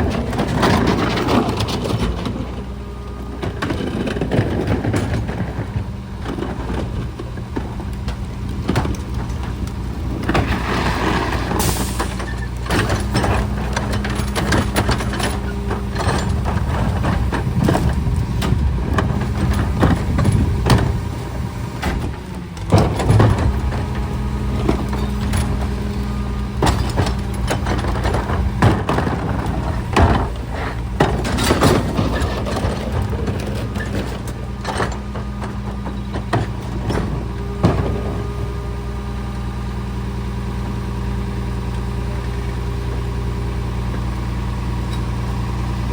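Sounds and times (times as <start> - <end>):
garbage truck engine running: 0.0 - 45.9
knocks and clanks: 3.3 - 38.8.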